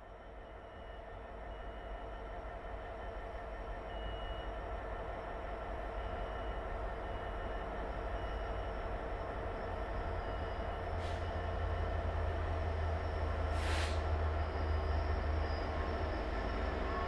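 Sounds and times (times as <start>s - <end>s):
train locomotive humming: 1.2s - 17.0s
air hiss: 13.6s - 14.0s.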